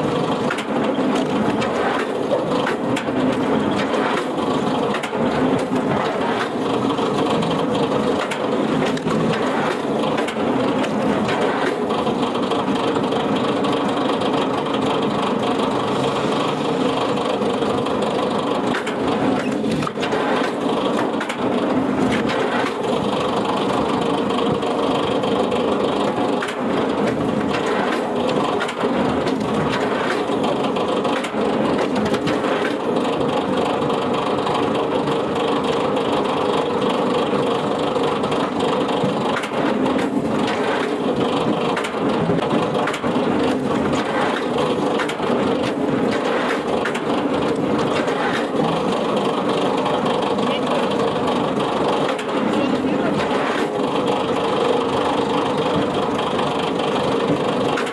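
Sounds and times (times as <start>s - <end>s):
machine crushing wood: 0.0s - 57.9s
wood cracking: 38.3s - 57.9s.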